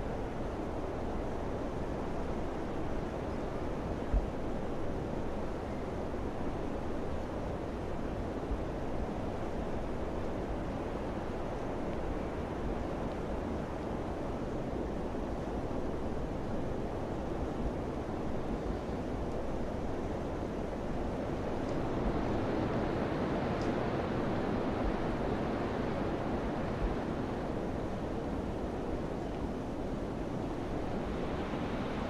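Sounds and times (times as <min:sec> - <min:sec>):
rushing wind: 0:00.0 - 0:32.0.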